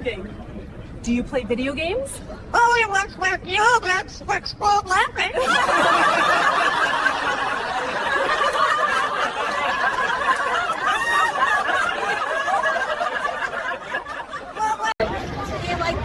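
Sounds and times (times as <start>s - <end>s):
people laughing together: 5.3s - 15.0s.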